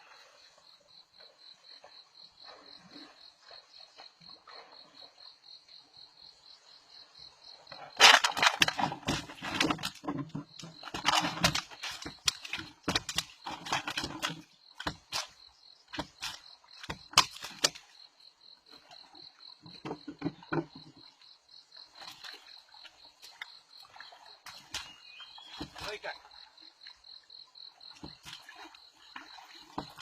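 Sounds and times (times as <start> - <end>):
sharp knocks and thumps: 7.7 - 17.9, 19.6 - 21.2, 24.5 - 26.2, 27.9 - 28.4, 29.2 - 30.0.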